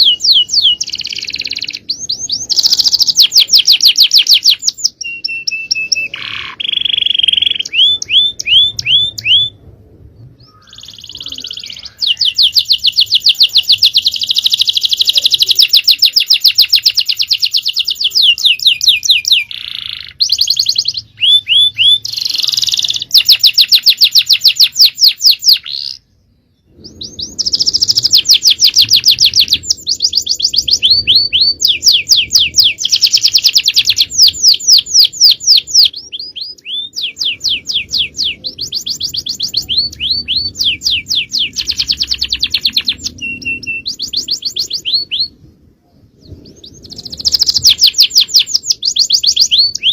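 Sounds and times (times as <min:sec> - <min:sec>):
canary singing rapid trills: 0:00.0 - 0:09.6, 0:10.5 - 0:26.0, 0:26.9 - 0:45.4, 0:46.2 - 0:49.9.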